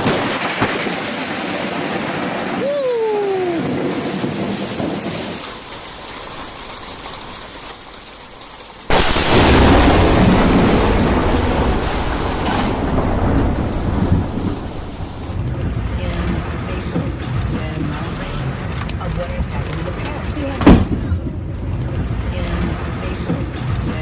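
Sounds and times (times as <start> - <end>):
thunderclap and rolling thunder: 0.0 - 7.6, 8.9 - 16.6
steady rain: 0.0 - 20.6.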